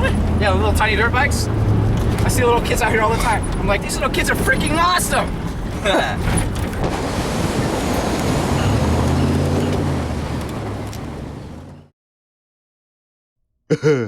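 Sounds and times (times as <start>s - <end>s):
pickup truck engine under load: 1.4s - 11.9s.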